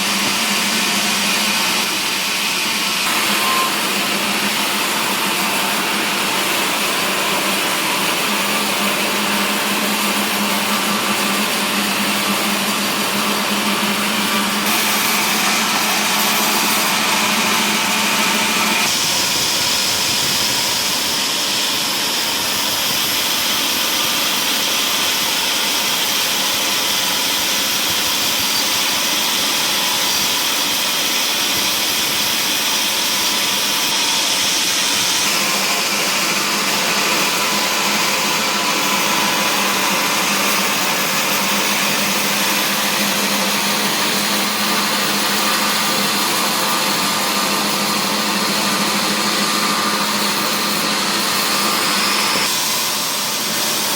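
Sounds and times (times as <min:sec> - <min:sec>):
wood-processing machinery running: 0:00.0 - 0:53.9.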